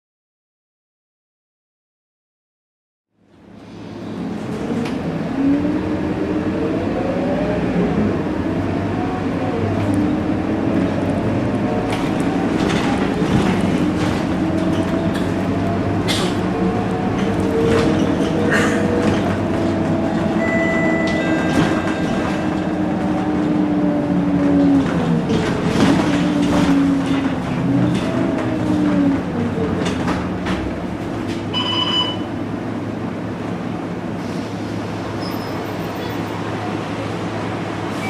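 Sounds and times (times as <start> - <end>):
bus engine whine: 3.2 - 38.0
brief pitched tone: 20.4 - 22.8, 31.5 - 32.3.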